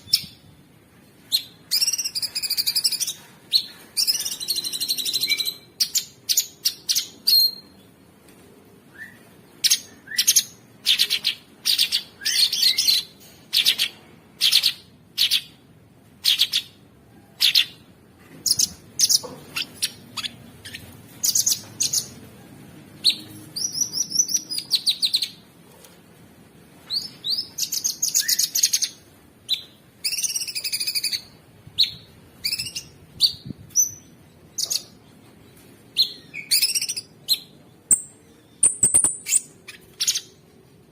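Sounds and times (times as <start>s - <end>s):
bird singing high chattering song: 1.4s - 7.8s, 9.0s - 15.6s, 18.4s - 22.2s, 23.0s - 25.4s, 26.9s - 35.2s, 36.0s - 40.4s.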